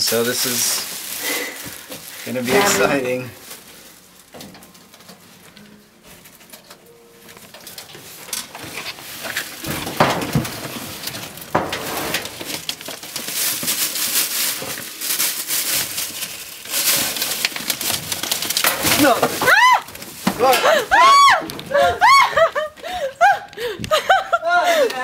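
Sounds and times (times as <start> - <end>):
flexible vent tube rustling: 0.0 - 24.3.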